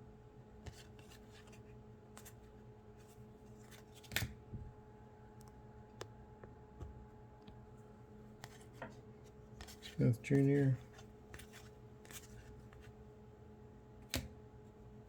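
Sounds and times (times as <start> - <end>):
faint steady hum: 0.0 - 15.0
trading cards flicking and rustling: 0.6 - 4.4, 8.4 - 13.1.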